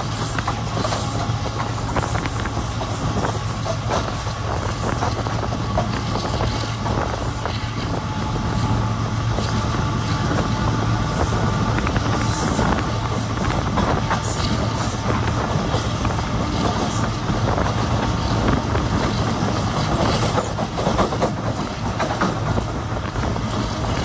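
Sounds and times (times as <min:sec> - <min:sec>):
train rumble and hum: 0:00.0 - 0:24.0
wheels clacking over rail joints: 0:00.0 - 0:24.0.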